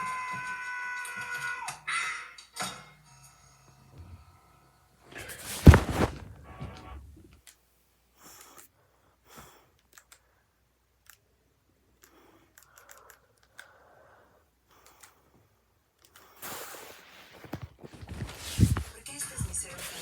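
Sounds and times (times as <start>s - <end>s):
soft rustles: 5.2s - 7.4s, 16.9s - 20.0s
faint clicks: 9.8s - 10.3s, 12.0s - 13.8s, 14.7s - 15.2s.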